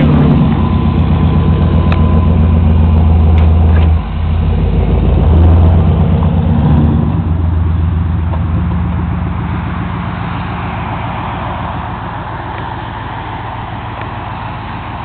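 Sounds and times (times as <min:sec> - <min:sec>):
pickup truck engine pulling away: 0:00.0 - 0:15.0.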